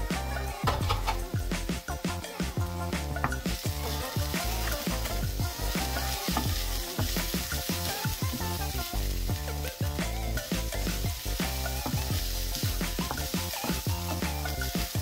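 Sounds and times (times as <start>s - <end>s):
background music with beat: 0.0s - 15.0s
onion and garlic sizzling in oil: 0.7s - 15.0s
wooden spatula stirring: 3.2s - 15.0s.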